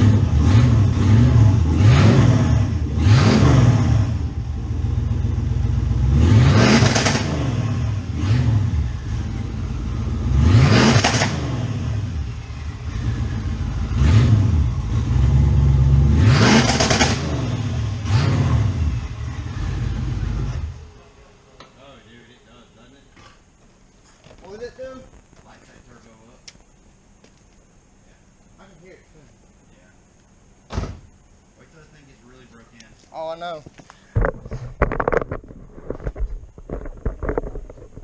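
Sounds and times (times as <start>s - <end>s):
car engine revving: 0.0s - 21.1s.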